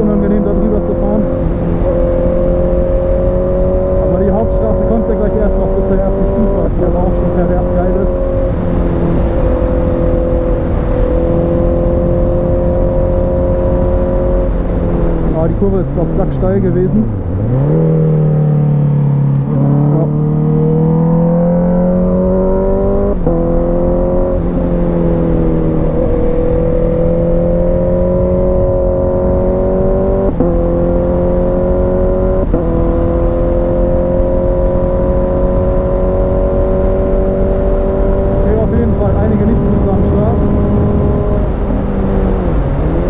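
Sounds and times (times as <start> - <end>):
motorcycle engine accelerating: 0.0 - 43.0
wind rushing: 34.8 - 43.0.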